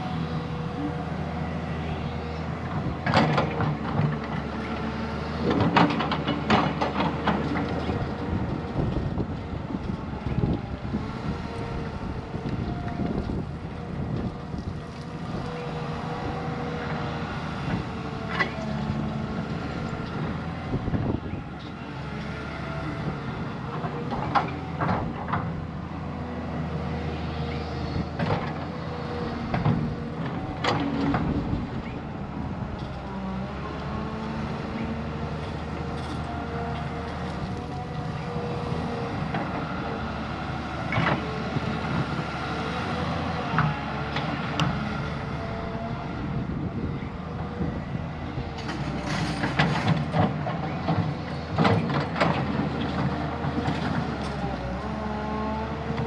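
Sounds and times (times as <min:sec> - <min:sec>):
diesel machine engine running: 0:00.0 - 0:56.0.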